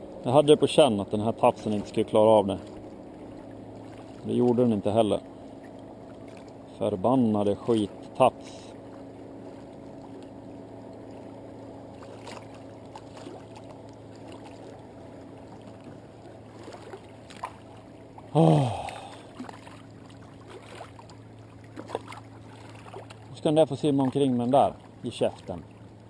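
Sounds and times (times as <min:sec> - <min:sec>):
steady low hum: 0:00.0 - 0:26.0
man groaning: 0:18.3 - 0:19.3.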